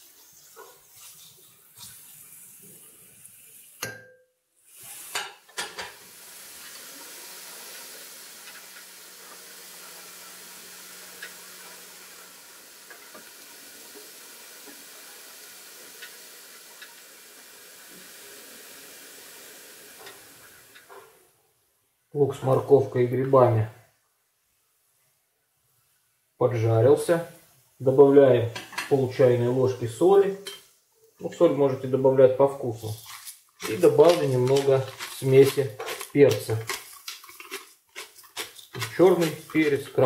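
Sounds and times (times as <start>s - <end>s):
vegetables sizzling in oil: 4.6s - 21.0s, 32.8s - 40.0s
spoon scraping and knocking pan: 32.9s - 40.0s.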